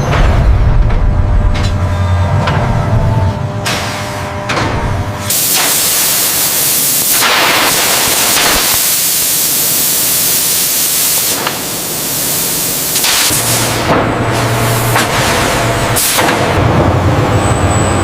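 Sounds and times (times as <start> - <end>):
loud steady hiss: 5.3 - 14.9.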